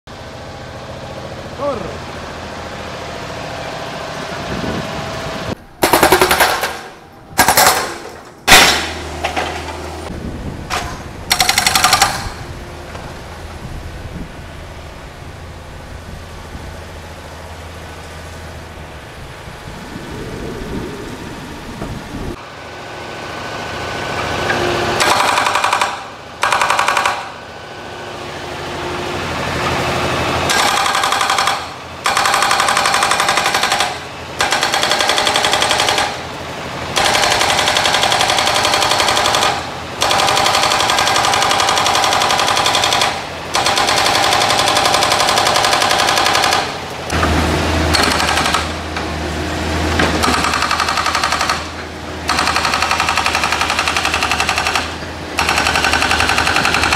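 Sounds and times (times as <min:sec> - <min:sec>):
hydraulic breaker hammering metal: 0:05.8 - 0:09.8, 0:10.7 - 0:12.5, 0:24.5 - 0:27.4, 0:30.4 - 0:36.2, 0:36.9 - 0:49.2, 0:49.9 - 0:56.9.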